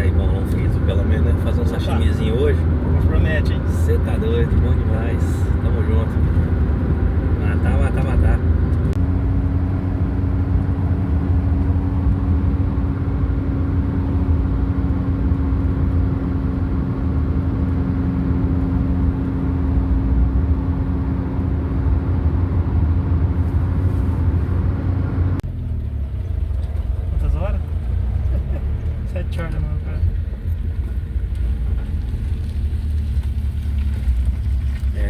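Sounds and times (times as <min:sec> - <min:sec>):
car engine and road noise: 0:00.0 - 0:35.0.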